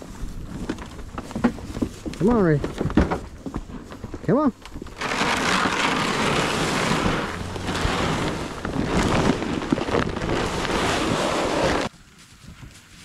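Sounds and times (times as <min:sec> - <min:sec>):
wind on microphone: 0:04.8 - 0:13.0.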